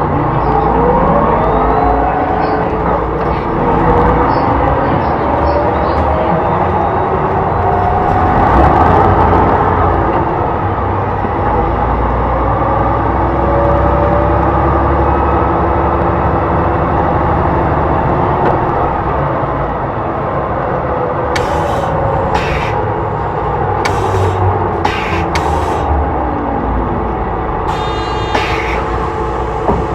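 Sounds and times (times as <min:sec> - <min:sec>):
bus engine drone: 0:00.0 - 0:29.9
air hissing: 0:21.4 - 0:26.0, 0:27.7 - 0:29.9.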